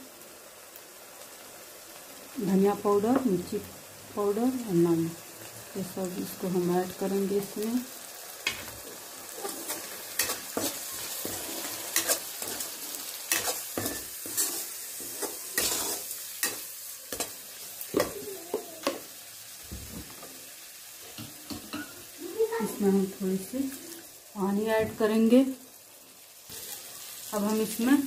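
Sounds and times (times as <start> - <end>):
spices sizzling in hot oil: 0.0 - 28.0
steel spoon scraping a pan: 9.4 - 18.1.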